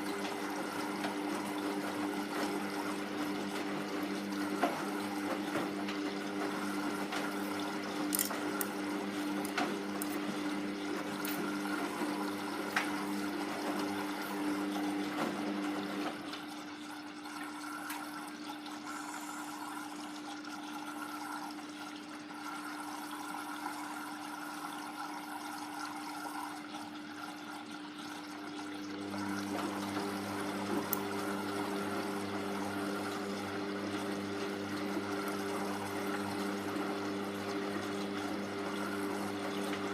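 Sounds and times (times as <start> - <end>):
drain pump humming: 0.0 - 39.9
water running: 0.0 - 39.9.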